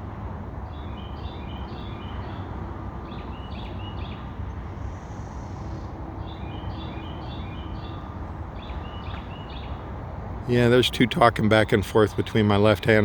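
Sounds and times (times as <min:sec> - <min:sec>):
distant road traffic rumble: 0:00.0 - 0:13.0
songbirds whistling: 0:00.6 - 0:09.8.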